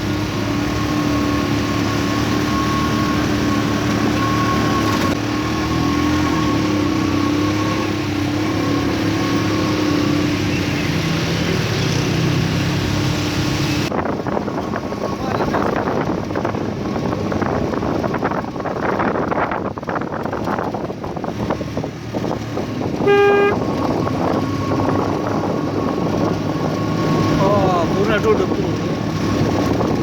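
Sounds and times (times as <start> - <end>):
road traffic noise: 0.0 - 30.0
short vehicle horn toot: 23.0 - 23.8.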